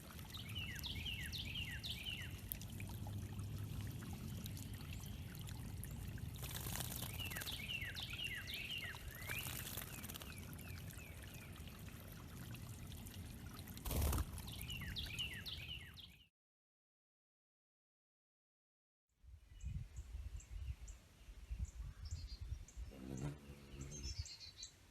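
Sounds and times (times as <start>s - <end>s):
songbird singing: 0.0s - 3.4s, 4.3s - 11.8s, 14.4s - 16.3s, 19.5s - 24.9s
water trickling over stones: 0.0s - 16.2s.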